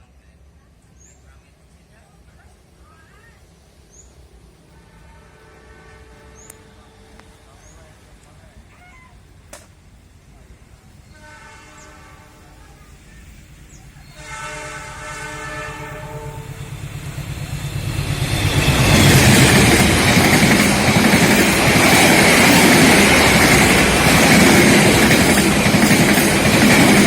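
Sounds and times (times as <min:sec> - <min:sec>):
diesel locomotive engine: 0:00.0 - 0:27.0
train horn blasts: 0:04.7 - 0:07.4, 0:11.0 - 0:12.6, 0:14.0 - 0:17.0
wheels clattering on rails: 0:16.3 - 0:27.0.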